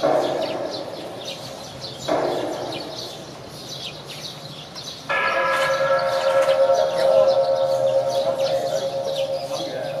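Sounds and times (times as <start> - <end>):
small birds chirping: 0.0 - 10.0
loud steady pitched tone: 5.2 - 10.0.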